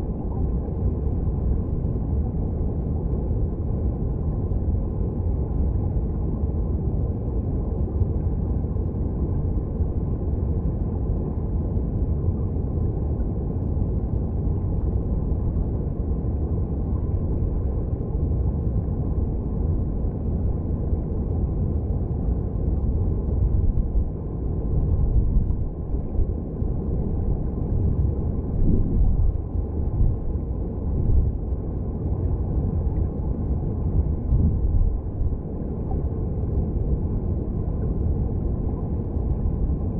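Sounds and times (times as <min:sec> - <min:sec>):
muffled underwater water rush: 0:08.0 - 0:39.9.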